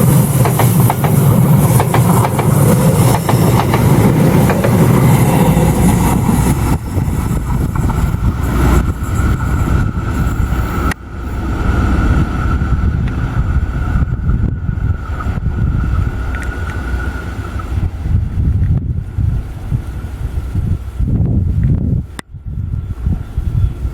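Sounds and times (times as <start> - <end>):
train rumbling past: 0.0 - 23.9
wind on microphone: 0.0 - 23.9.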